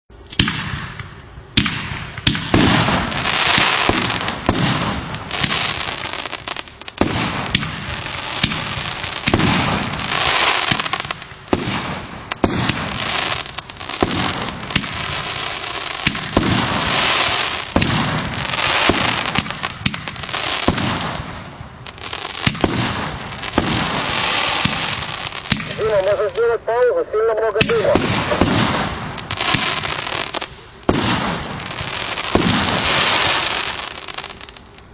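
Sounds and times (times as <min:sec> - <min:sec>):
fireworks hissing crackling bursts: 0:00.2 - 0:34.9
fireworks launch thumps: 0:32.3 - 0:32.8.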